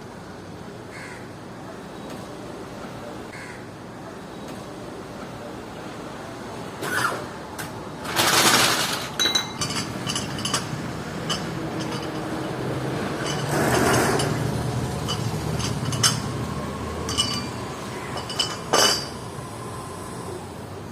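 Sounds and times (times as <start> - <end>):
tools clinking and knocking: 8.2 - 19.3.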